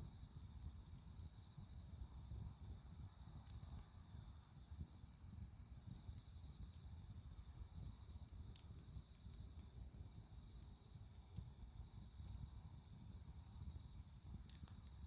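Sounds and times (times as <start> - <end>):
fire crackles and pops: 0.0 - 15.0
low rumble of flames: 0.0 - 15.0.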